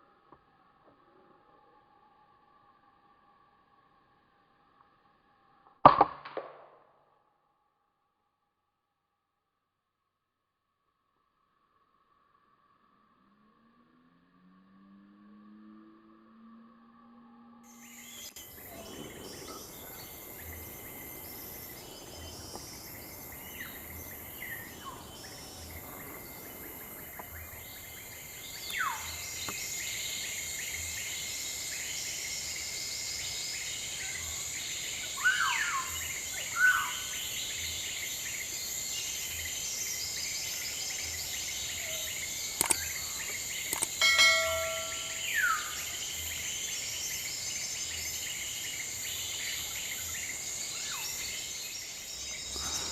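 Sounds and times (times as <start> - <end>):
high insect drone: 17.7 - 52.9
downward-sliding whistled bird calls: 28.5 - 30.1, 33.7 - 37.4, 41.6 - 47.3
sharp clicks: 42.5 - 44.6.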